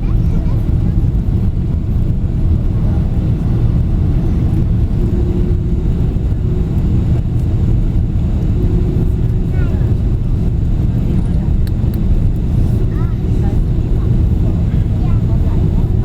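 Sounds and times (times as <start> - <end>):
airliner engine and airflow rumble: 0.0 - 16.0.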